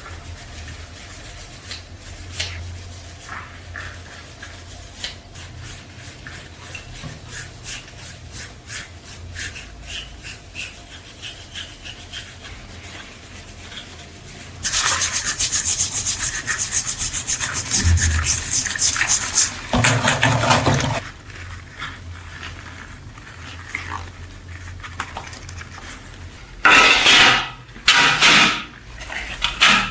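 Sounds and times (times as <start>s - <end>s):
hand sanding strokes: 0.0s - 21.0s
fast loud scrubbing: 10.6s - 21.0s.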